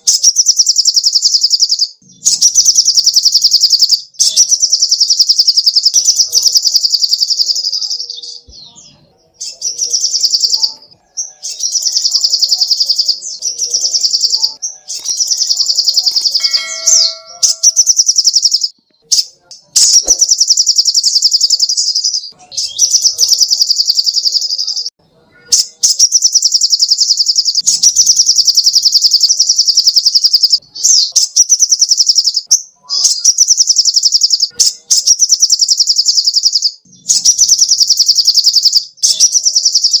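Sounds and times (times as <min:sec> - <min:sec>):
bird singing fast high trills: 0:09.5 - 0:18.7.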